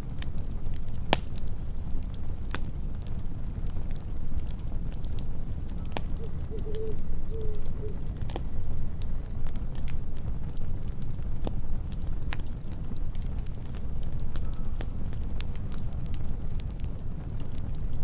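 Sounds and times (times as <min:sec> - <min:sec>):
campfire crackling: 0:00.0 - 0:18.0
cricket chirping: 0:03.0 - 0:08.9, 0:12.8 - 0:18.0
low warbling call: 0:06.2 - 0:08.0.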